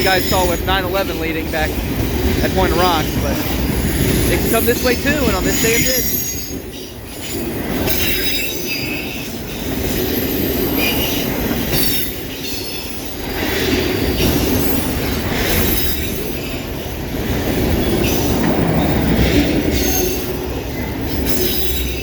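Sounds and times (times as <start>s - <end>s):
steel wheels rumbling on rails: 0.0s - 22.0s
high-pitched wheel squeals: 3.8s - 9.2s.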